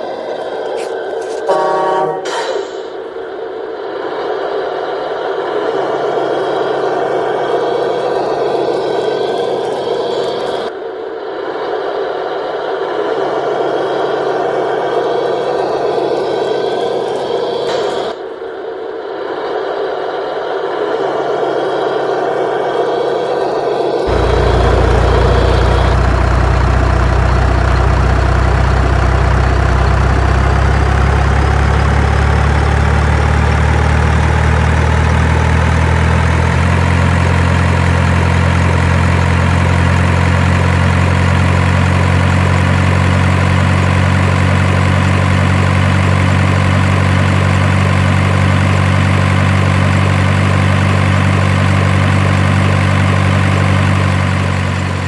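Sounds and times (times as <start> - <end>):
faint whine: 17.8 - 34.7
heavy vehicle engine idling: 24.0 - 55.0.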